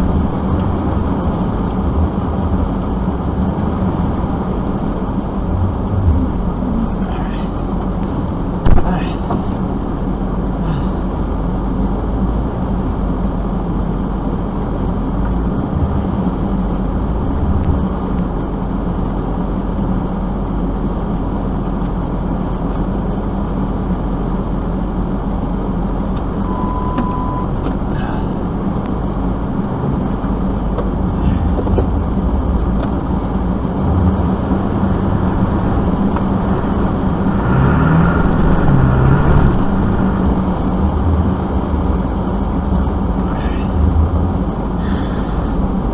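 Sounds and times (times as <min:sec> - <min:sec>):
vehicle engine and road rumble: 0:00.0 - 0:45.9
short beep: 0:26.4 - 0:27.6.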